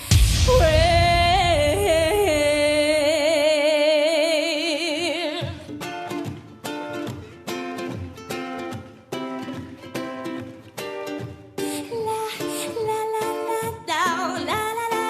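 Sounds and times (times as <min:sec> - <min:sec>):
woman singing with vibrato: 0:00.0 - 0:05.7, 0:11.7 - 0:15.0
plucked string notes: 0:00.0 - 0:15.0.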